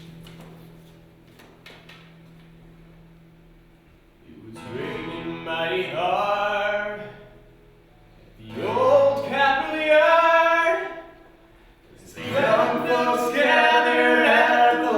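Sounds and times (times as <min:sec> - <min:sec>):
person singing unaccompanied: 0:12.2 - 0:14.9.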